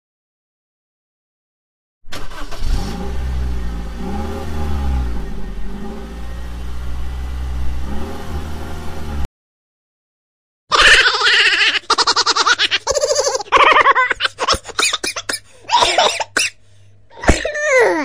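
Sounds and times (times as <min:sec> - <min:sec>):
vehicle engine revving: 0:02.1 - 0:09.3.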